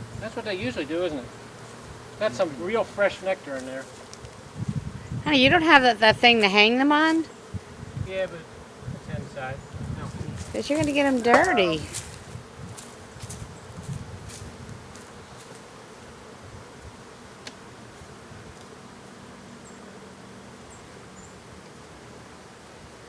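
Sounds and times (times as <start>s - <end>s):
bees buzzing: 0.0s - 23.0s
knocks from handling hive: 10.3s - 15.7s.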